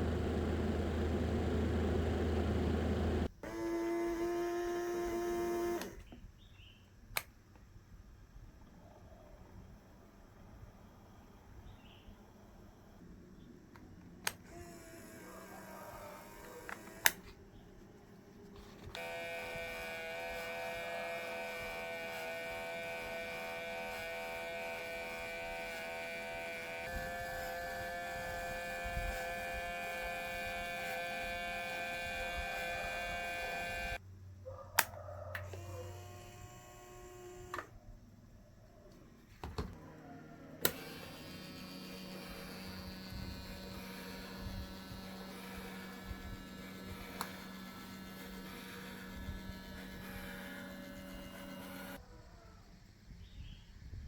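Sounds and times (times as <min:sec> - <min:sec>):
small electric motor whining: 0:00.0 - 0:06.1, 0:14.2 - 0:17.4, 0:18.8 - 0:34.0, 0:35.4 - 0:37.8, 0:39.8 - 0:52.0.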